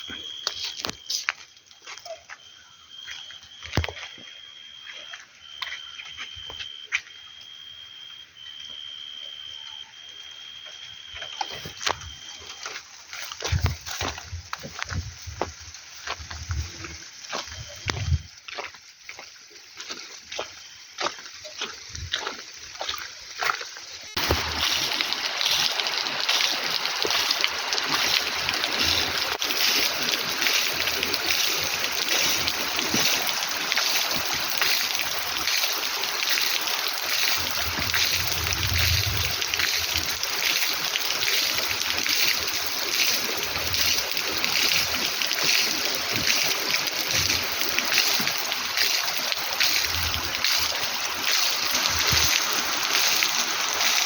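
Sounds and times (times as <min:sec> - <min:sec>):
water drips: 0:09.4 - 0:54.0
heavy rain pouring: 0:24.1 - 0:54.0.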